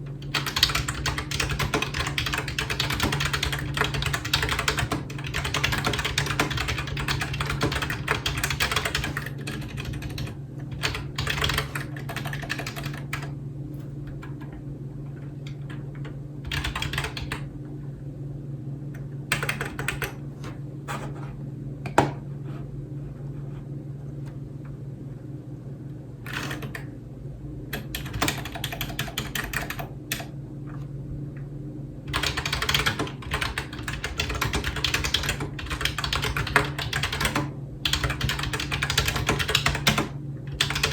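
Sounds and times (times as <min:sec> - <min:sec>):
typing on computer keyboard: 0:00.2 - 0:13.3, 0:16.5 - 0:17.4, 0:19.3 - 0:20.2, 0:26.3 - 0:26.9, 0:27.8 - 0:30.3, 0:32.1 - 0:40.9.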